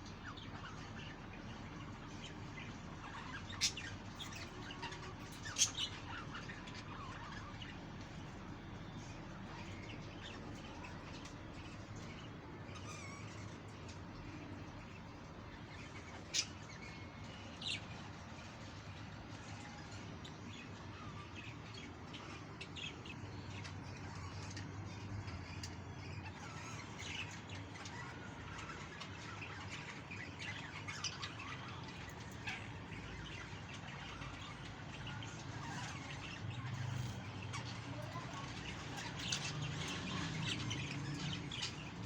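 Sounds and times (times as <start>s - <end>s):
budgerigars chirping: 0.2s - 7.8s, 19.4s - 42.0s.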